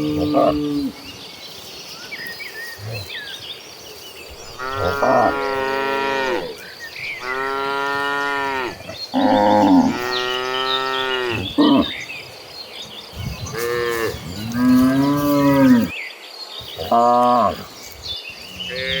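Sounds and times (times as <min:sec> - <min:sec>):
cows mooing: 0:00.0 - 0:01.0, 0:04.5 - 0:06.6, 0:07.2 - 0:12.1, 0:13.2 - 0:15.9, 0:16.7 - 0:17.7, 0:18.5 - 0:19.0.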